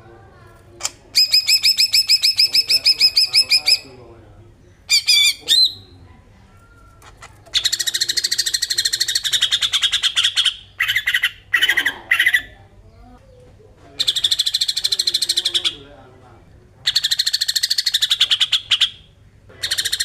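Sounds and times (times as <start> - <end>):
bird rattling trill: 7.1 - 12.4.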